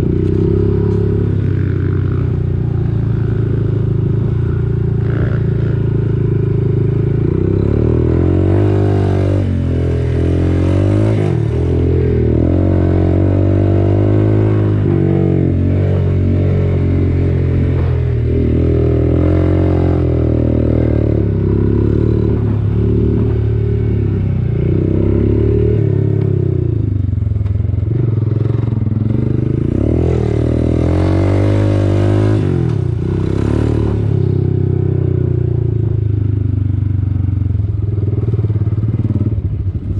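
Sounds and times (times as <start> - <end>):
quad bike engine revving: 0.0 - 27.0, 27.8 - 35.9.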